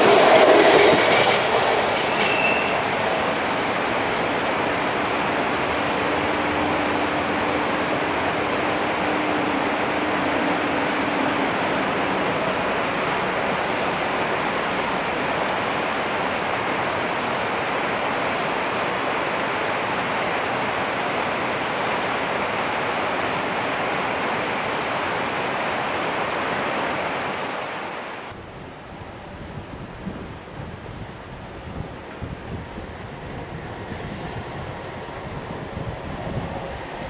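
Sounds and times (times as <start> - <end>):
passing train rushing and rolling: 0.0 - 37.0.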